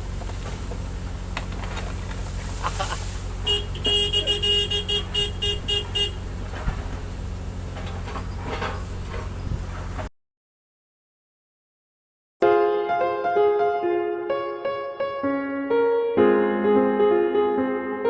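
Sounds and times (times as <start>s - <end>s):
diesel engine running: 0.0s - 10.1s
excavator horn short blasts: 2.9s - 6.4s.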